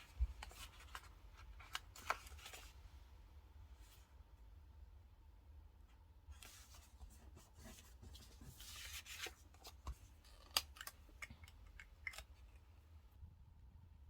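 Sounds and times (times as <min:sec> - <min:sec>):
paper rustling: 0:00.0 - 0:02.8, 0:06.3 - 0:11.0.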